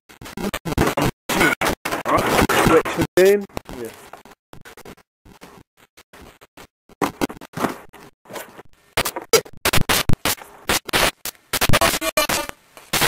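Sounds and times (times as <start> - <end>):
scratchy scraping noise: 3.7 - 8.7.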